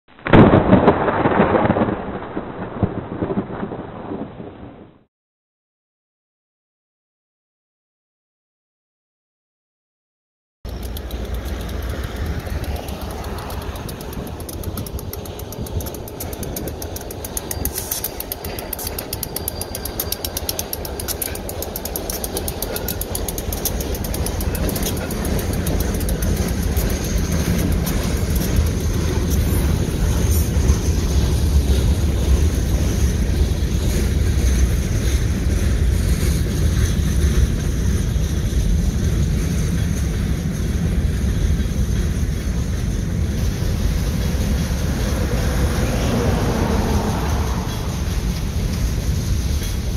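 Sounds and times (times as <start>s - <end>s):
diesel locomotive engines: 10.7s - 49.9s
train cars rumbling past: 10.7s - 49.9s.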